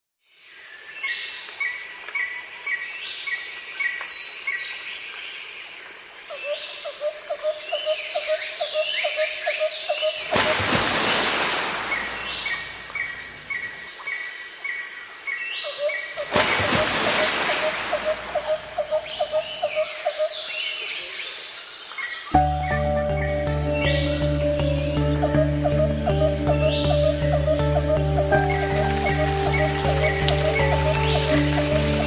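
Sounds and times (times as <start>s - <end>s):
birds singing and calling: 7.4s - 32.0s.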